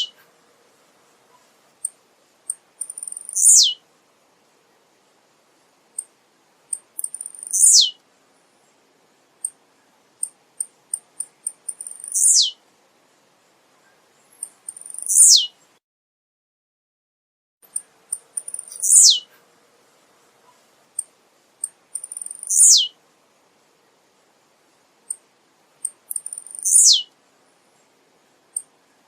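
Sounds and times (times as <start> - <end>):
bird singing: 0.0 - 0.3, 2.5 - 3.8, 6.7 - 8.0, 9.4 - 12.6, 13.8 - 15.8, 17.7 - 19.3, 21.0 - 23.0, 25.8 - 27.1.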